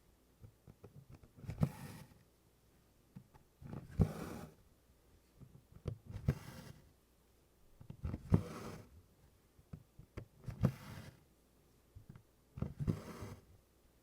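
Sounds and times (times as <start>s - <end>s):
thread rasping through cloth: 7.8s - 8.9s.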